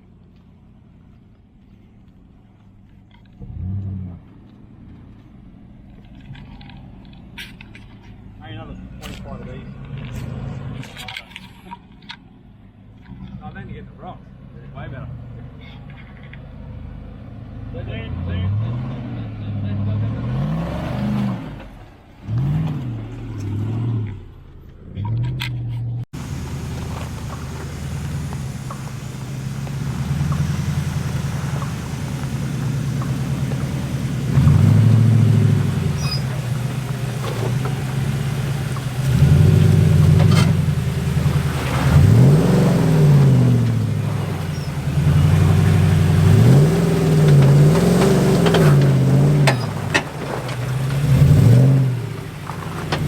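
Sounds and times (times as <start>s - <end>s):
off-road vehicle engine revving: 3.4s - 4.4s, 6.1s - 11.8s, 13.0s - 53.0s.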